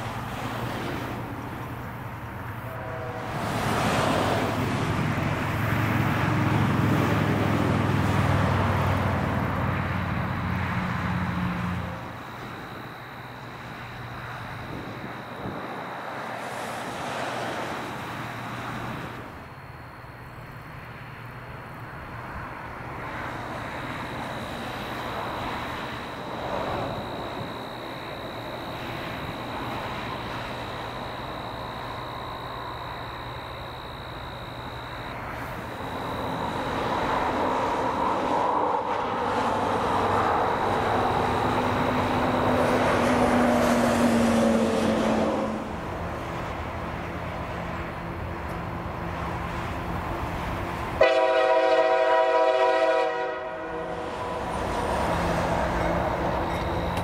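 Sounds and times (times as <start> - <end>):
diesel locomotives rumbling: 0.0 - 57.0
locomotive air horn: 2.5 - 4.6, 51.0 - 57.0.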